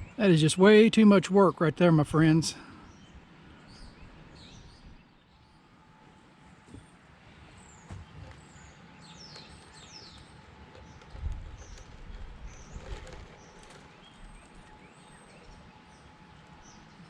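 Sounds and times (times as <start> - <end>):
birds chirping: 6.6 - 17.0
wind buffeting microphone: 10.8 - 14.8.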